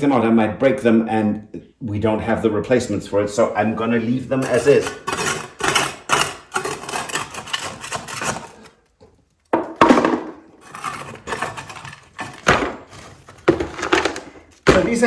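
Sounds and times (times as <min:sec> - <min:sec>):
hand tool scraping floor tiles: 0:03.6 - 0:15.0.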